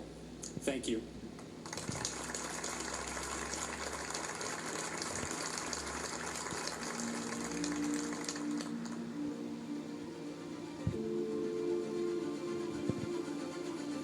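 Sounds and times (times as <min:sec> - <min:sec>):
audience applauding: 0:01.6 - 0:09.2
music with sustained tones: 0:01.9 - 0:14.0.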